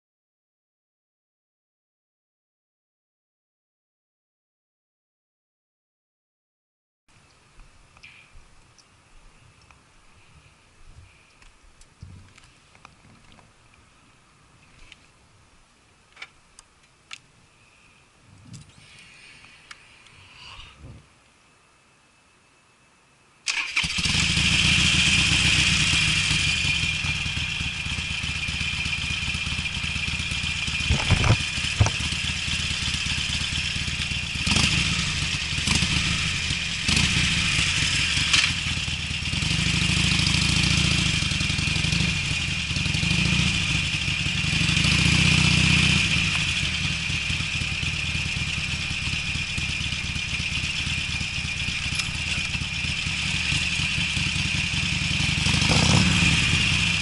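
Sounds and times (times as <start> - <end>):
motorcycle engine revving: 23.5 - 57.0.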